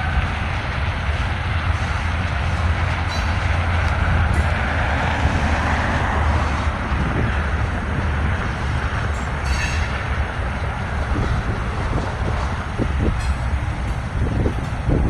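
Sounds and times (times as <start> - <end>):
freight train rumbling on rails: 0.0 - 15.0
high-pitched wheel squeal: 9.2 - 10.1.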